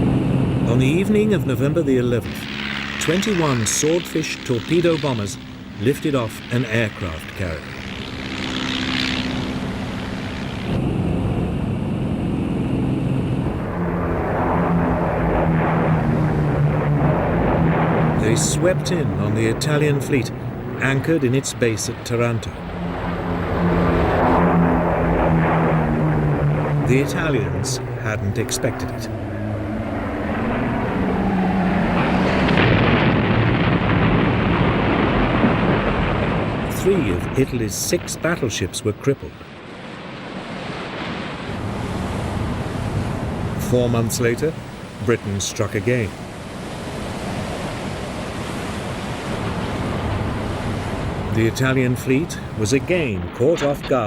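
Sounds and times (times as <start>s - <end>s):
dense low rumble: 0.0s - 38.4s, 51.0s - 54.0s
propeller aircraft engines droning: 0.0s - 54.0s.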